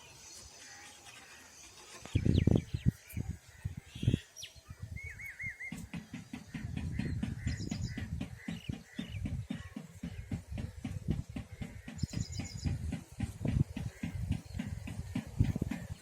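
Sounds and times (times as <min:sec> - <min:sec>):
birds chirping: 0:00.0 - 0:16.0
low thumps and knocks: 0:05.6 - 0:16.0.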